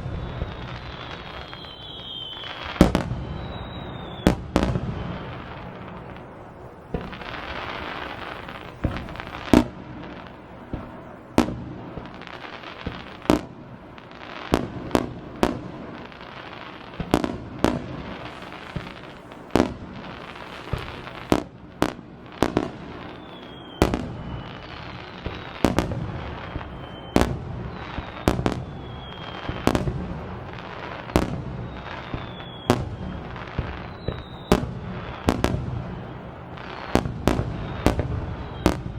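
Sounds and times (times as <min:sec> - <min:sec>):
falling fireworks whistles: 0:00.0 - 0:38.9
fireworks bangs: 0:00.0 - 0:38.9
fireworks crackling: 0:00.0 - 0:38.9.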